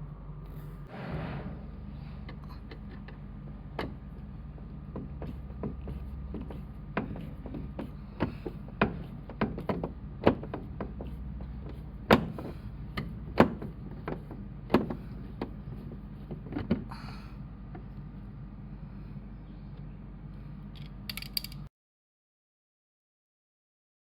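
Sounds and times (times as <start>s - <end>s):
low hum: 0.0s - 21.6s
sharp knocks and clicks: 2.3s - 16.9s.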